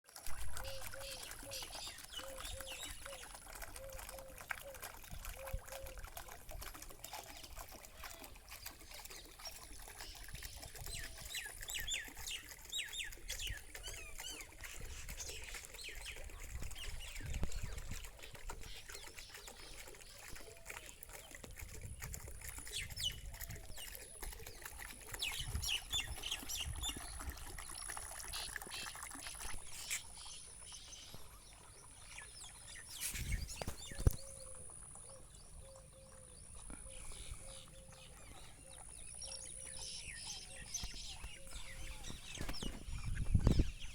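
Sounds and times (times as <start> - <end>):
water flowing and trickling: 0.0 - 43.9
birds chirping: 0.6 - 4.4, 22.5 - 43.9.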